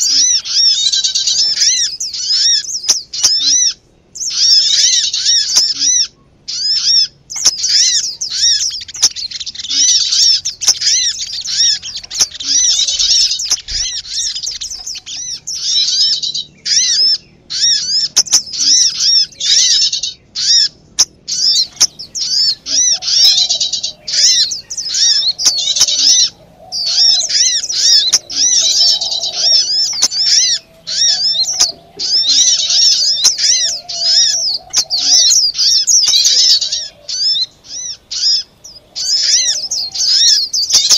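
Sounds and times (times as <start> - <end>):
small birds chirping: 0.0 - 40.9
soft low bird warbling: 21.3 - 40.9.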